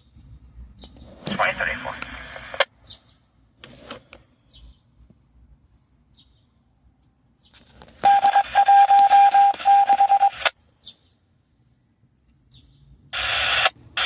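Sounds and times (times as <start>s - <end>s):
hissy radio noise: 1.2s - 2.7s.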